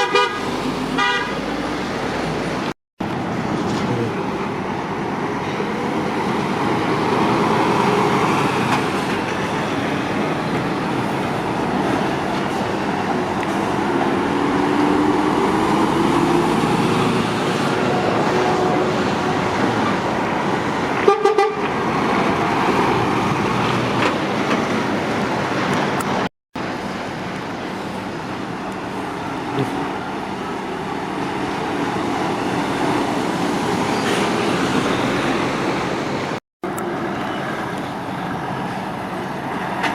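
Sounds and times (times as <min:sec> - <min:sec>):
motorway traffic passing: 0:00.0 - 0:39.9.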